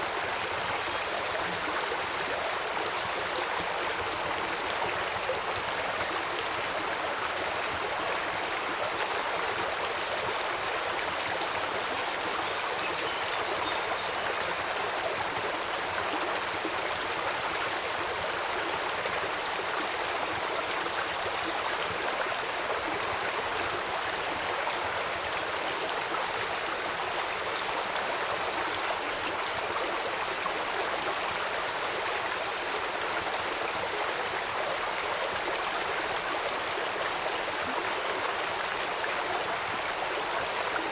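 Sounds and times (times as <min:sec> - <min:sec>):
rain: 0:00.0 - 0:40.9
stream flowing: 0:00.0 - 0:40.9.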